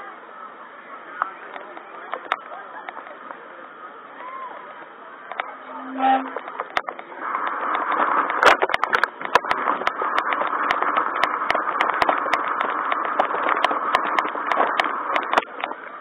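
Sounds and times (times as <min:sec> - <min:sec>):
steady rushing noise: 0:05.3 - 0:16.0
rain tapping on an umbrella: 0:06.4 - 0:16.0.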